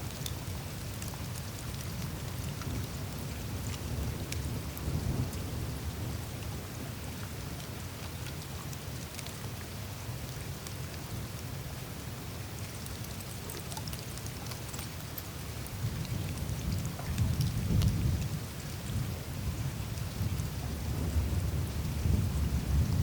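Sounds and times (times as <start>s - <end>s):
meltwater trickling: 12.4s - 17.2s.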